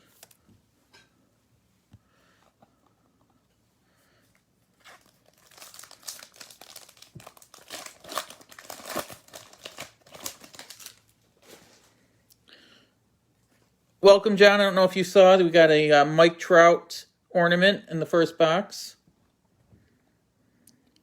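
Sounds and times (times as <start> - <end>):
wrapper crinkling and tearing: 4.8 - 11.2.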